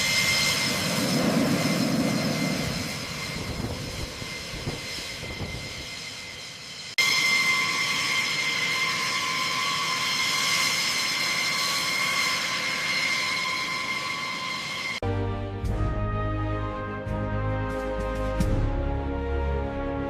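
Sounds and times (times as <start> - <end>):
jet fighter engines whining: 0.0 - 15.6
music: 15.0 - 20.0.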